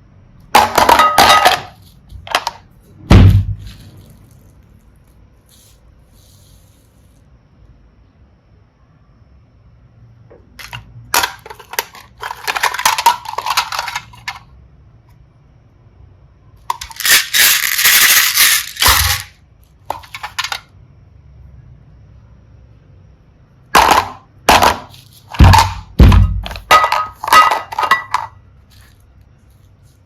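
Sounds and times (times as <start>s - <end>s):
small hard pieces clattering: 0.6s - 7.2s, 10.6s - 14.4s, 16.7s - 20.7s, 23.8s - 30.0s.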